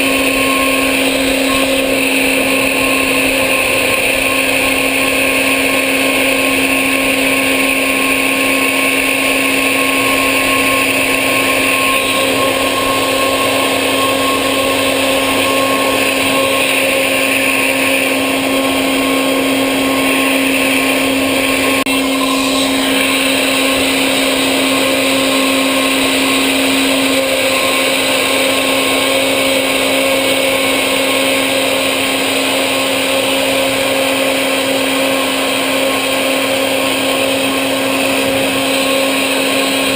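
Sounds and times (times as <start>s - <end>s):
hissing noise: 0.0s - 29.1s
machine motor whine: 0.0s - 39.9s.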